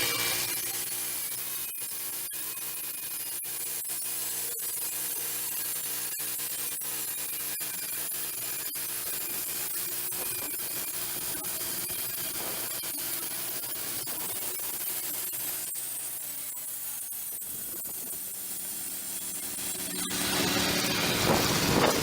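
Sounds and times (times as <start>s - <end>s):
band saw cutting log: 0.0s - 22.0s
low hum: 19.2s - 22.0s.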